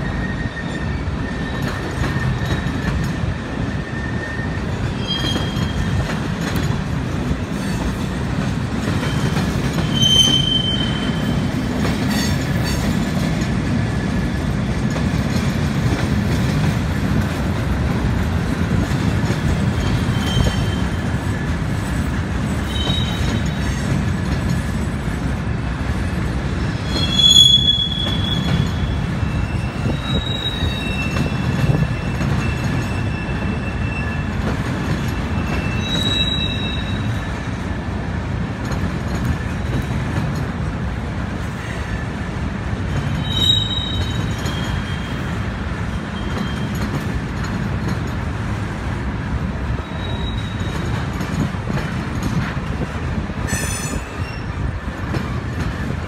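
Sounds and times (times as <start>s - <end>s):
high-pitched wheel squeals: 0.0s - 3.0s, 3.6s - 6.0s, 9.1s - 11.4s, 19.8s - 21.1s, 22.6s - 23.8s, 26.8s - 37.3s, 43.0s - 45.4s, 46.1s - 47.0s, 49.8s - 51.0s, 53.5s - 54.6s
steel wheels rumbling on rail: 0.0s - 56.0s.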